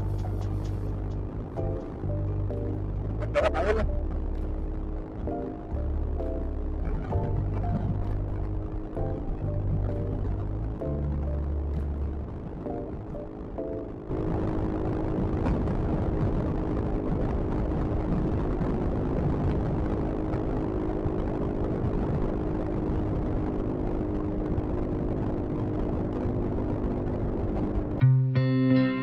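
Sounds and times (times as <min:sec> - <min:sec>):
electric guitar music: 0:00.0 - 0:14.1, 0:28.0 - 0:29.0
wind rumble: 0:00.0 - 0:28.1
scooter engine drone: 0:00.0 - 0:29.0.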